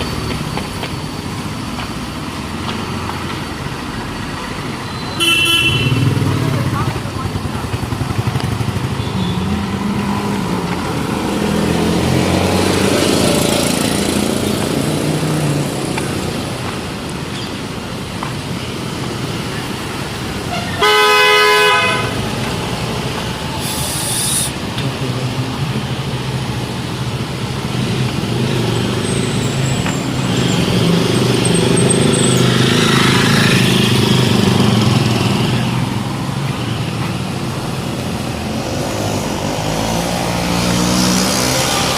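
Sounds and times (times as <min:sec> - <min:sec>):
street traffic engines: 0:00.0 - 0:41.9
loud horn honking: 0:05.2 - 0:06.4, 0:20.4 - 0:22.3.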